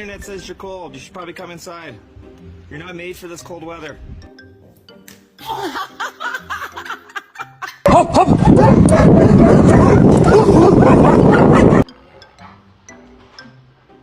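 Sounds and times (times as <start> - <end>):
dog barking: 8.4 - 11.9.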